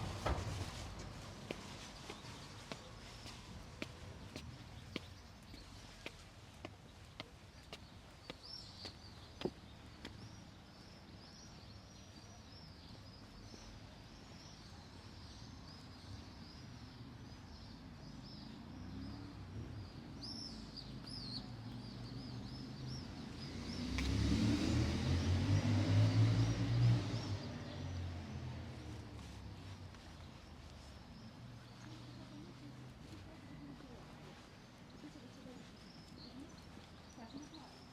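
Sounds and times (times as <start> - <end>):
footstep clicks: 0.0 - 10.4
small birds chirping: 0.0 - 37.9
car engine and tyre rumble: 22.7 - 37.1.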